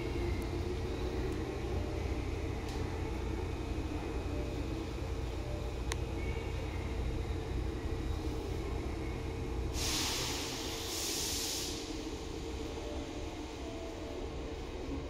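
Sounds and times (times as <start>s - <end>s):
train car rumble and hum: 0.0s - 15.0s
compressed air hiss: 9.8s - 11.9s.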